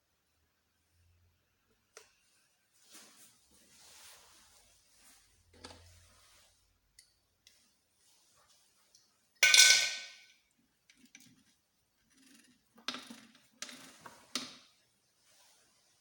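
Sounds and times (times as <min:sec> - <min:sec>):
metal clang: 0:09.4 - 0:10.3.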